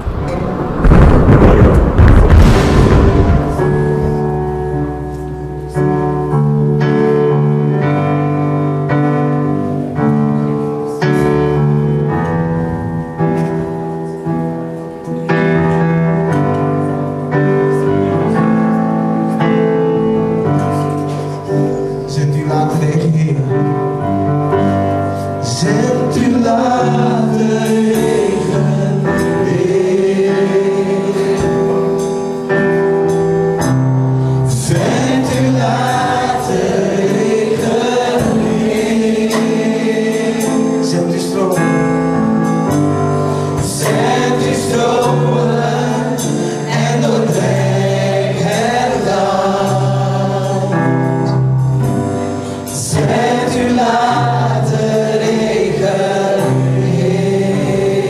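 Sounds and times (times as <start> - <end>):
group singing worship song: 0.0 - 5.0, 25.4 - 32.4, 34.3 - 42.7, 43.3 - 58.0
instrumental accompaniment: 0.0 - 58.0.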